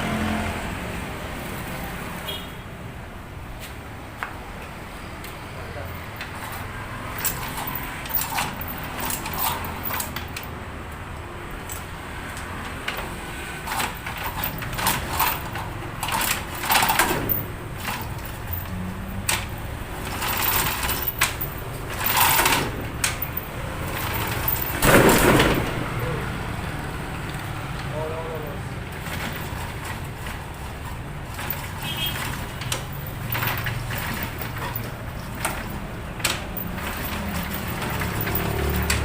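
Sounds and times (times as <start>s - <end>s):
mechanical clicking and rattling: 6.1s - 10.6s, 11.5s - 25.9s, 28.8s - 39.0s.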